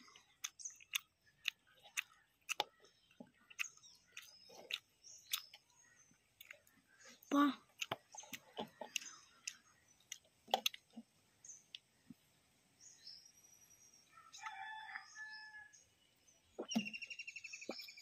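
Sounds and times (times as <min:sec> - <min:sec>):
birds chirping: 0:00.0 - 0:18.0
bird call with several tones: 0:16.6 - 0:18.0.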